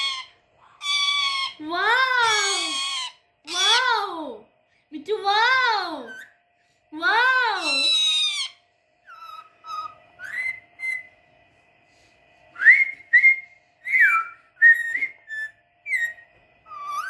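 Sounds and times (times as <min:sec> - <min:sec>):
parrot whistling a tune: 0:07.6 - 0:11.2, 0:12.6 - 0:17.0.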